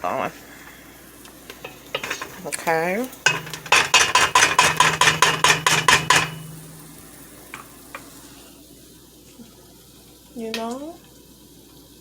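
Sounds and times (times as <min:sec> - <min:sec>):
utensil scraping a pan: 0:01.6 - 0:07.6.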